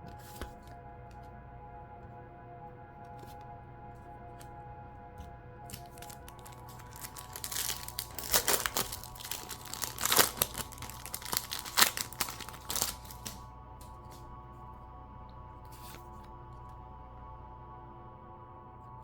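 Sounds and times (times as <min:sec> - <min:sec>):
foil wrapper crinkling and tearing: 0:05.7 - 0:13.4.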